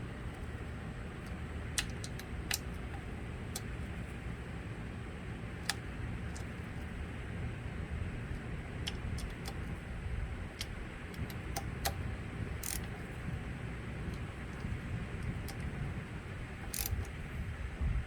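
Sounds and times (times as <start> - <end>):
low background hum: 0.0 - 18.0
metallic clicks of hand tools: 1.2 - 3.7, 8.9 - 9.6, 12.6 - 13.0, 16.6 - 17.2.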